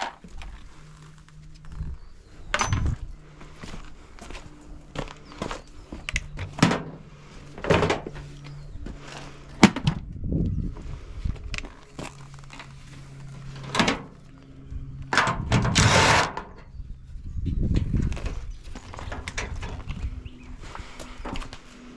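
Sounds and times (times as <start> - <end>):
faint low hum: 0.0 - 21.9
rattling scrape: 15.2 - 16.6.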